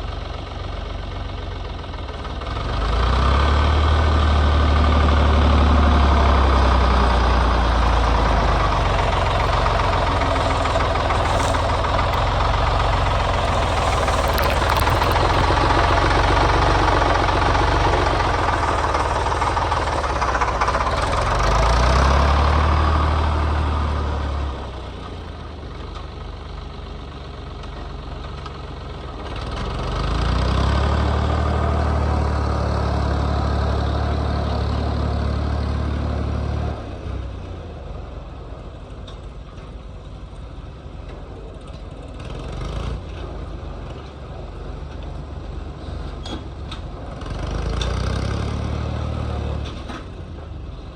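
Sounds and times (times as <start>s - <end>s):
diesel engine revving: 2.3s - 25.3s, 29.2s - 37.2s, 45.5s - 50.2s.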